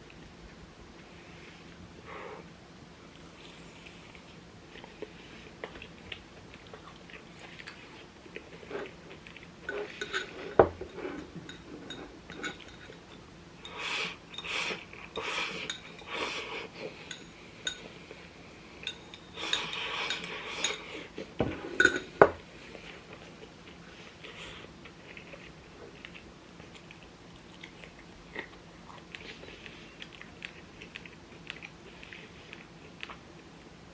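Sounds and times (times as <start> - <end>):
utensils clinking on plates: 9.7 - 13.8, 14.4 - 18.0, 18.8 - 22.3.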